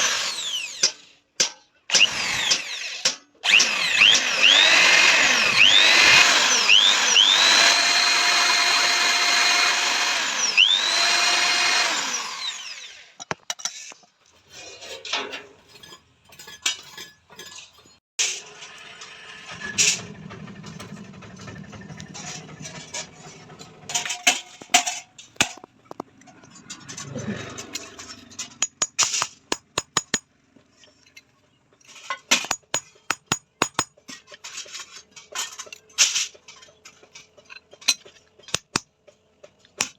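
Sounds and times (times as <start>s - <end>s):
power tool motor whining: 1.9s - 13.1s.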